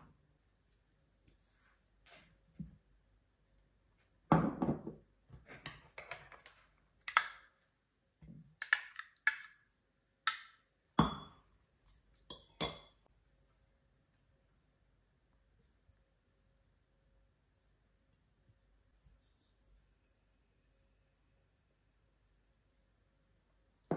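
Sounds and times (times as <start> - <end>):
dishes and glassware clinking: 12.3 - 13.0.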